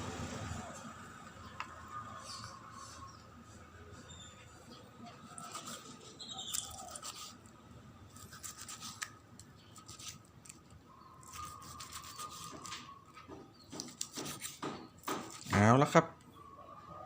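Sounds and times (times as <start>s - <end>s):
knife slicing meat on board: 13.7s - 15.5s.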